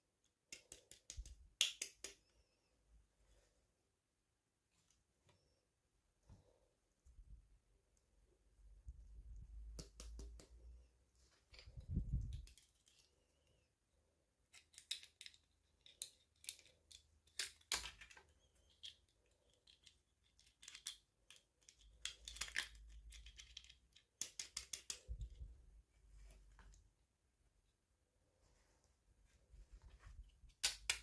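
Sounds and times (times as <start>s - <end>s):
packaging clicks and snips: 19.5s - 25.1s.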